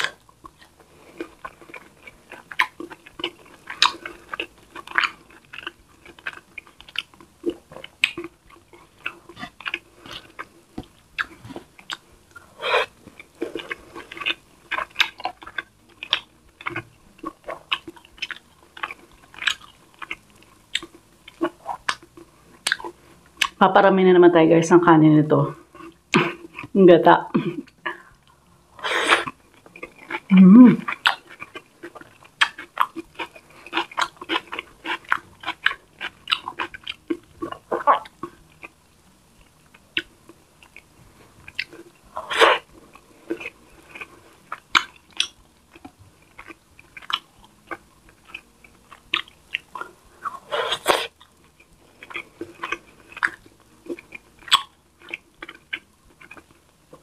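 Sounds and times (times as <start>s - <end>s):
person chewing wetly: 0.0s - 23.6s, 25.6s - 26.8s, 27.4s - 57.0s.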